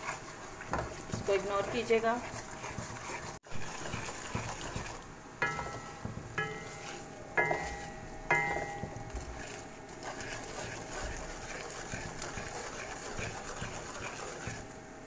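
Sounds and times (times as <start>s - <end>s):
semolina frying in ghee: 0.0s - 15.0s
wooden spoon stirring semolina: 0.0s - 15.0s.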